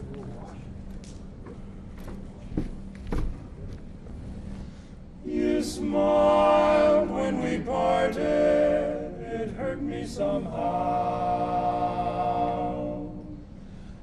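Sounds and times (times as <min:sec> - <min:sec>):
men singing a cappella harmony: 0:05.2 - 0:13.6.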